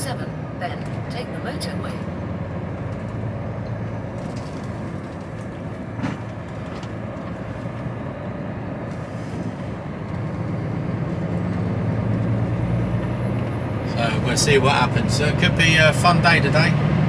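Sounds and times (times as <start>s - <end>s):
lorry diesel engine and road noise: 0.0s - 17.0s.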